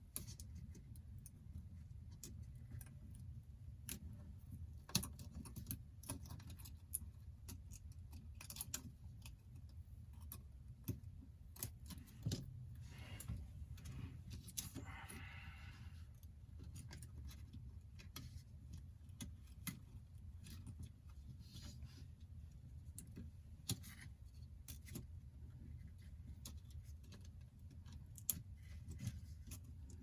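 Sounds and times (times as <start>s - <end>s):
low steady hum: 0.0s - 30.0s
small tools clicking and tapping: 0.1s - 12.5s, 22.8s - 30.0s.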